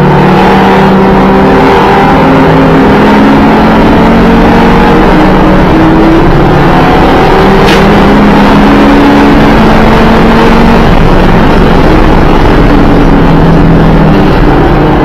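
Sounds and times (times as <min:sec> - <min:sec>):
car engine running hard: 0:00.0 - 0:15.0.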